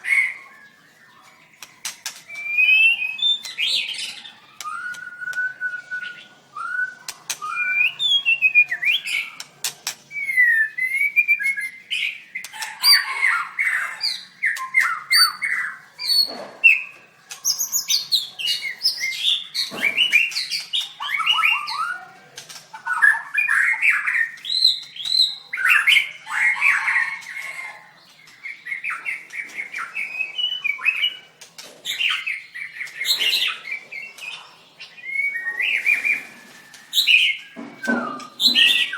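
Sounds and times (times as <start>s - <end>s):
bird singing whistled phrases: 2.3s - 9.4s, 10.1s - 12.2s, 35.0s - 38.9s.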